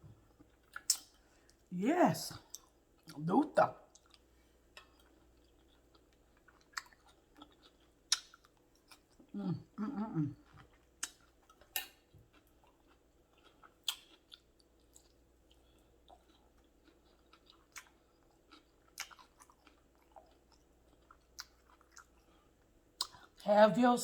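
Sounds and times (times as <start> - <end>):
person chewing: 0.3 - 1.6, 3.9 - 23.4
wet mouth clicks and smacks: 13.8 - 14.2.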